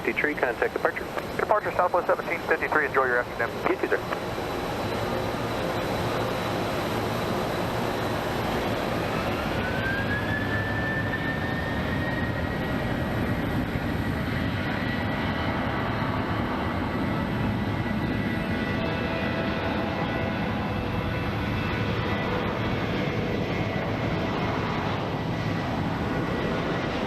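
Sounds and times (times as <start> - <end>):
jet engines spooling up: 0.0 - 14.3.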